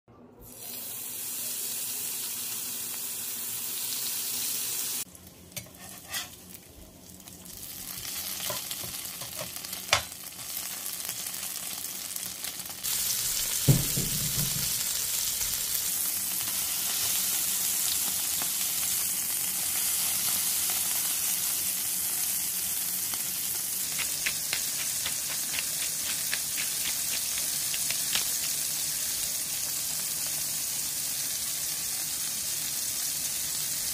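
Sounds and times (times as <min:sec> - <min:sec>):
meat sizzling on a griddle: 0:00.6 - 0:33.9
low thud: 0:13.7 - 0:14.8.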